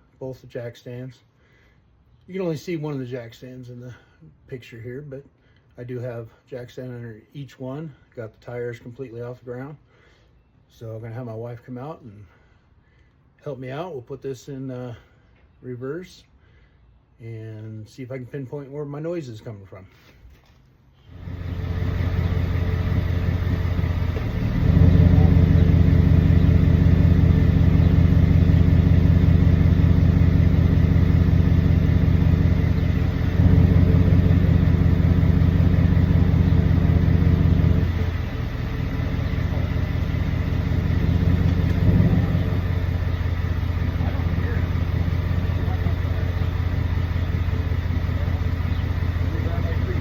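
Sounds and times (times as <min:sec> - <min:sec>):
truck engine running: 0:21.1 - 0:50.0.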